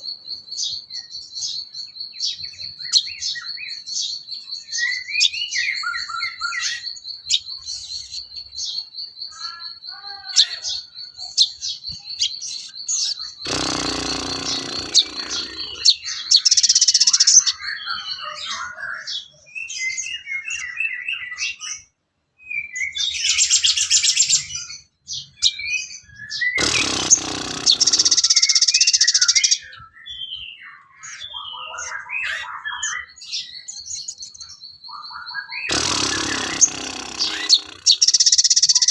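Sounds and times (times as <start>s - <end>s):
high bird trill: 0.0s - 21.6s, 22.8s - 29.8s, 32.3s - 38.9s
songbird chirping and singing: 0.0s - 26.6s, 27.2s - 38.9s
harsh rasping bird call: 12.4s - 17.6s, 26.4s - 29.6s, 35.5s - 38.9s.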